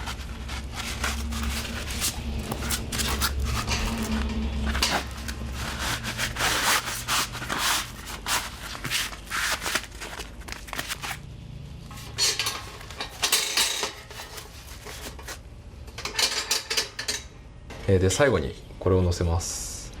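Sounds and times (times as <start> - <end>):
metal scraping on metal: 0.0 - 8.7, 11.9 - 15.4.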